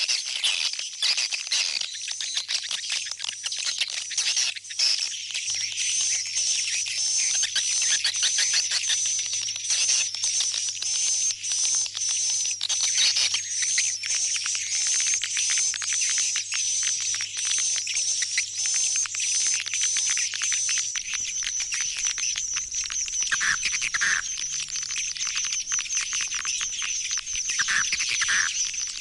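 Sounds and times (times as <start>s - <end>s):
swiftlets twittering: 13.0s - 29.0s.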